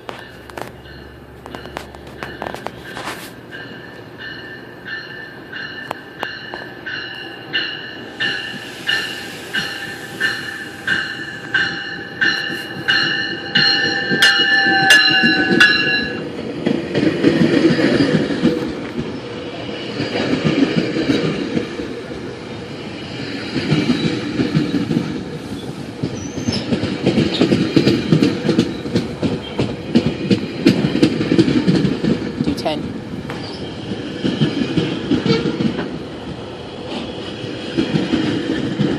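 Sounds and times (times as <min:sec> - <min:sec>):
train cars rumbling: 0:00.0 - 0:38.9
wheels clicking over rail joints: 0:23.5 - 0:32.7.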